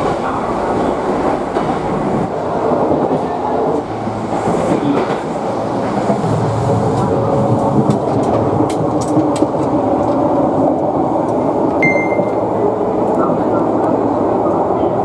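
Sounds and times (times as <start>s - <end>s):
train running rumble from inside: 0.0s - 15.0s
short high beep: 11.8s - 12.4s.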